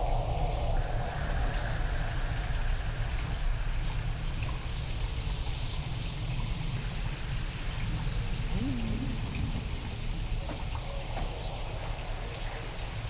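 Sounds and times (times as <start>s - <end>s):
low rumble of storm: 0.0s - 5.9s, 8.1s - 13.0s
heavy rain: 8.4s - 13.0s.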